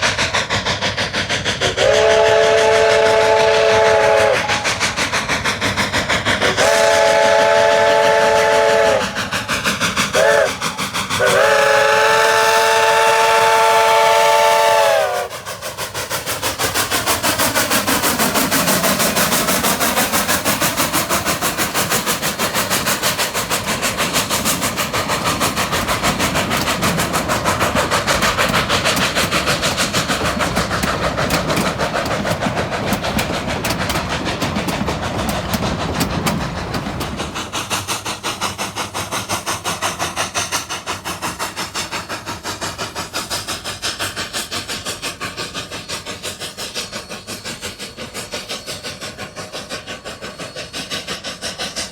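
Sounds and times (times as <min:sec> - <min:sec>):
steam locomotive exhaust beats: 0:00.0 - 0:51.9
train running clatter: 0:00.0 - 0:51.9
steam whistle blast: 0:01.6 - 0:04.8, 0:06.4 - 0:09.2, 0:10.1 - 0:15.4.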